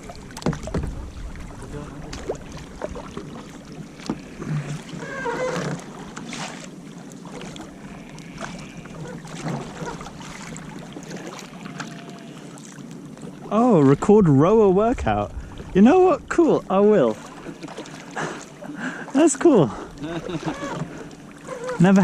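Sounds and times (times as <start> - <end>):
wind on microphone: 0.0 - 5.1, 14.1 - 17.6
paddles splashing in water: 0.0 - 22.0.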